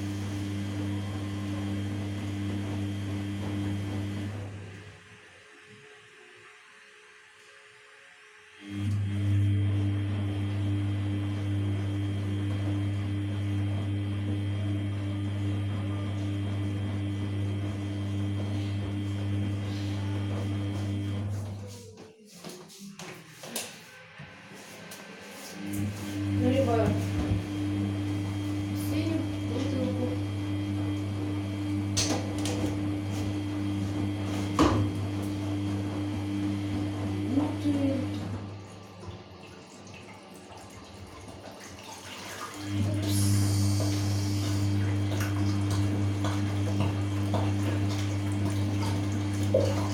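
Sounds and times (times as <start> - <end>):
washing machine drain pump humming: 0.0 - 22.0, 23.2 - 49.9
water noise: 25.4 - 49.9.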